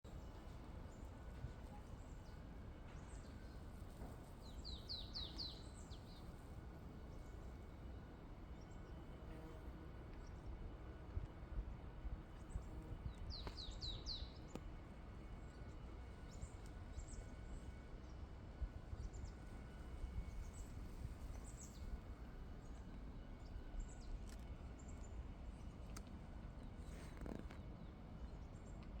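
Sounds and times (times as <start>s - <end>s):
small songbirds chirping: 4.4s - 6.4s, 12.4s - 14.6s.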